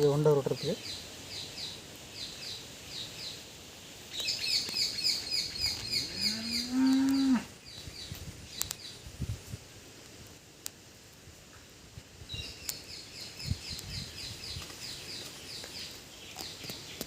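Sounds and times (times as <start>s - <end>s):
small birds chirping: 0.0s - 9.2s, 12.2s - 17.0s
cow mooing: 6.0s - 7.5s.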